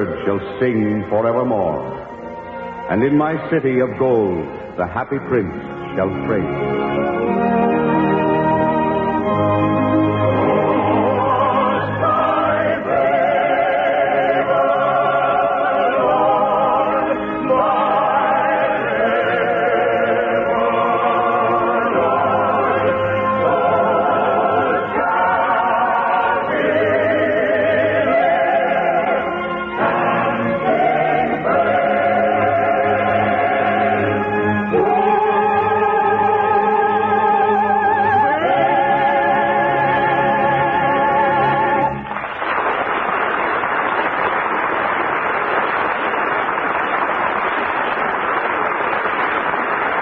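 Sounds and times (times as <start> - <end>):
choir singing: 7.0 - 42.1.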